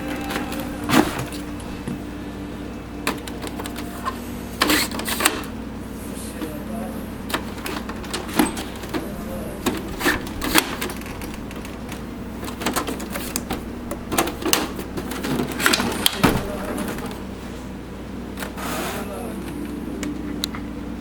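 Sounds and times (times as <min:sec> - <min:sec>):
steady low hum: 0:00.0 - 0:21.0
plastic parts clicking and knocking: 0:07.3 - 0:17.2.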